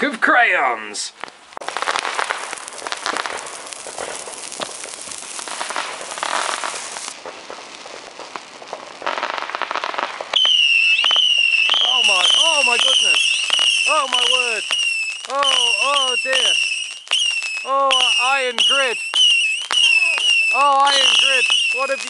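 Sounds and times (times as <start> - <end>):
firework crackling pops: 1.2 - 22.0
firework hiss: 1.2 - 22.0.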